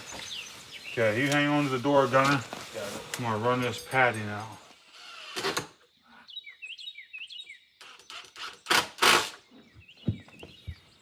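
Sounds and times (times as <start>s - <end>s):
brushing scuffing noises: 0.0s - 3.7s
songbird chirping: 0.0s - 8.5s, 9.3s - 11.0s.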